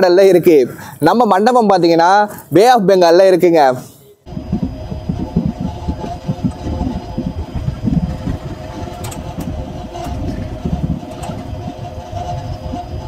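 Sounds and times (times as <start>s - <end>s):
steady hum: 4.0s - 13.0s
train coaches rumbling: 4.4s - 13.0s
sharp clicks and clanks: 5.1s - 13.0s.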